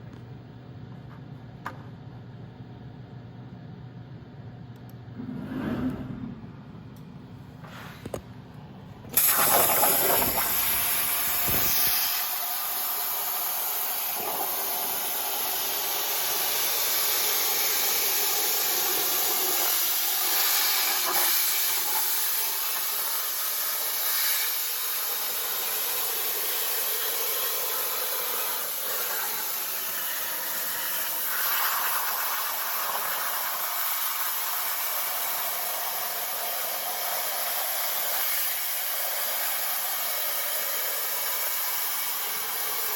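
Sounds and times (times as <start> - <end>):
plasma cutter hissing: 9.1 - 42.9.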